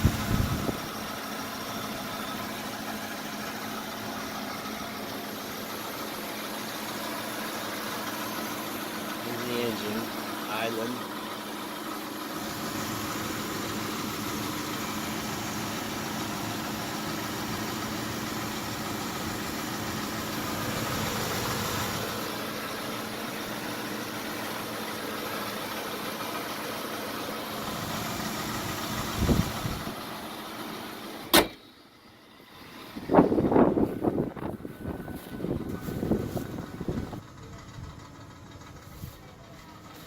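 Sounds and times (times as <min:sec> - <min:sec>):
rough engine idling: 0:00.0 - 0:40.0
sharp slam: 0:31.3 - 0:31.6.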